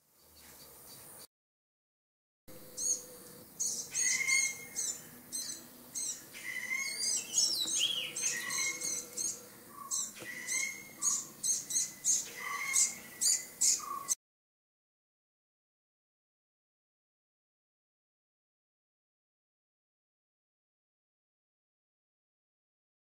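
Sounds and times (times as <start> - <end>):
bird calling in sharp high calls: 2.6 - 14.2.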